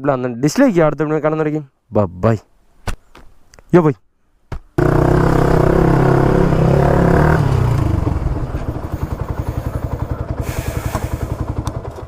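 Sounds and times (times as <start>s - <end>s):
motorcycle engine idling: 4.8s - 12.0s.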